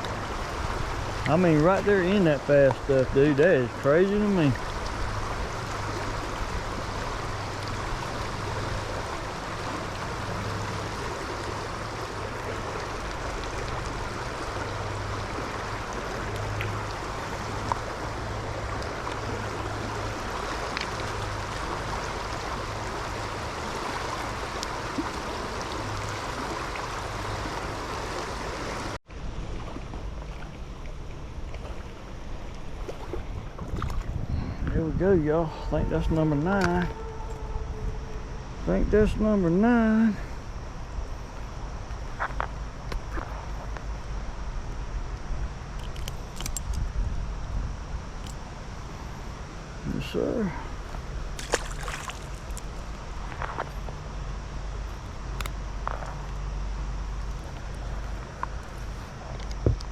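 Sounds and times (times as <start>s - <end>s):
stream rushing: 0.0s - 29.5s, 48.2s - 53.4s.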